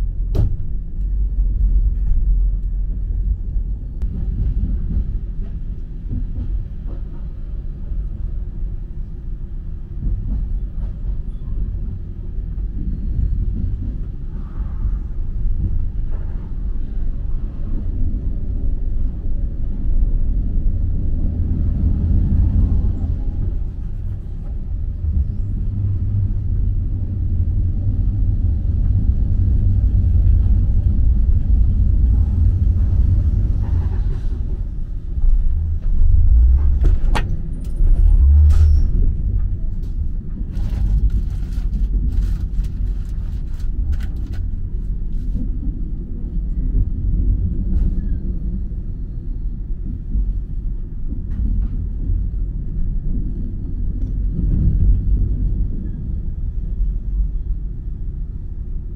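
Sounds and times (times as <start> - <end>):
train rumbling on rails: 0.0 - 58.9.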